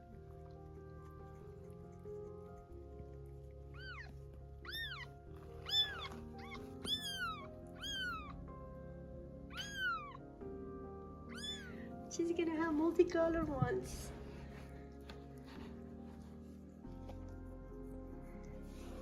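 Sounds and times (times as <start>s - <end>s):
background music with held tones: 0.0s - 19.0s
kitten mewing: 3.7s - 8.4s, 9.5s - 10.2s, 11.3s - 11.9s.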